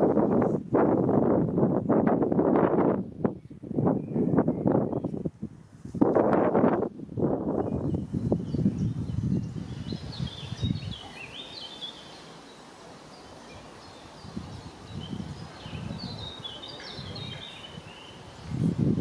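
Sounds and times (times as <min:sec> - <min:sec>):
wind buffeting microphone: 0:00.0 - 0:12.0, 0:13.8 - 0:19.0
songbird chirping: 0:07.5 - 0:18.9.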